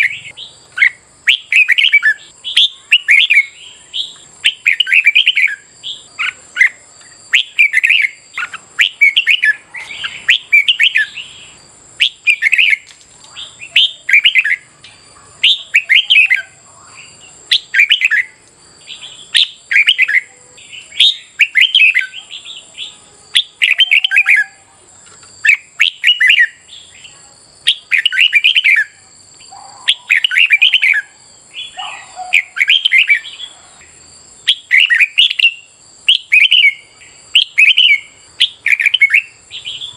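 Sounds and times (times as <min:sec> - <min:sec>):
bird warbled song: 0:00.0 - 0:39.9
faint steady high tone: 0:00.0 - 0:39.9.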